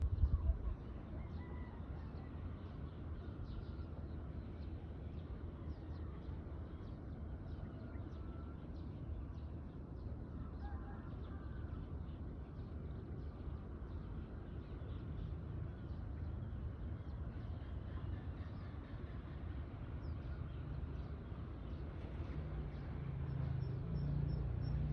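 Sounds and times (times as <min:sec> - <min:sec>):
steady low rumble: 0:00.0 - 0:00.8.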